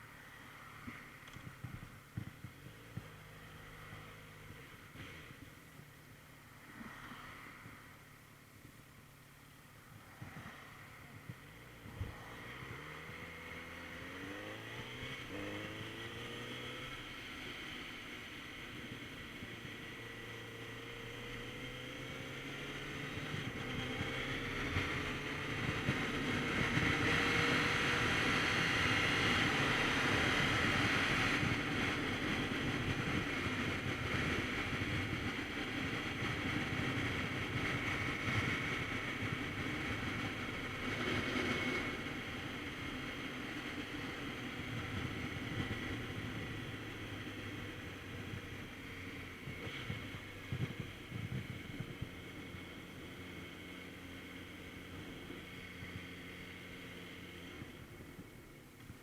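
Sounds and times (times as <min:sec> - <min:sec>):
motorcycle engine running: 0:00.0 - 0:06.6, 0:09.5 - 0:59.0
wind rushing over microphone: 0:09.8 - 0:20.0, 0:21.5 - 0:53.1.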